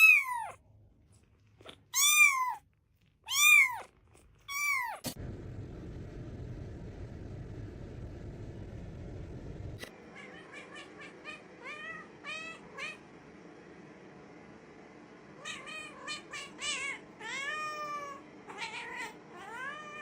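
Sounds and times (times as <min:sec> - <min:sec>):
cat meowing: 0:00.0 - 0:00.6, 0:01.9 - 0:02.6, 0:03.3 - 0:05.1, 0:10.1 - 0:13.0.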